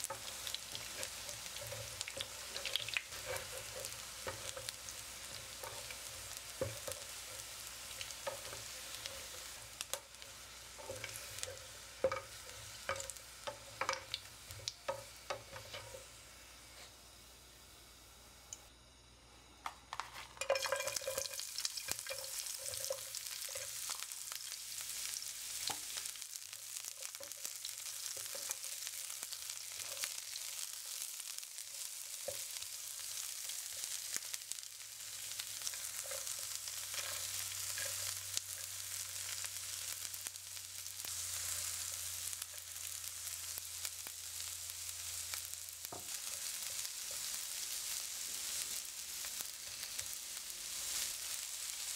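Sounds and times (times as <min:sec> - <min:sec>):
onion sizzling in hot oil: 0:00.0 - 0:18.0, 0:19.9 - 0:51.9.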